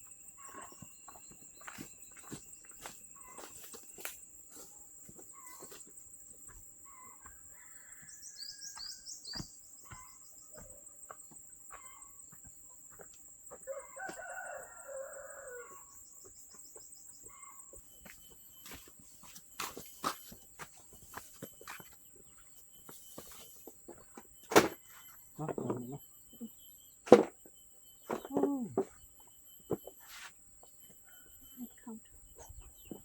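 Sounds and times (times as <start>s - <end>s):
rooster crowing: 7.4s - 8.4s, 13.6s - 15.9s.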